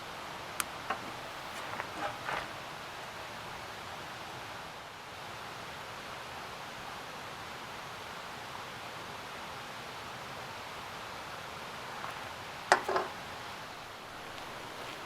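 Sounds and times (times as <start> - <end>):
rustling hiss: 0.0 - 3.1, 11.3 - 15.0.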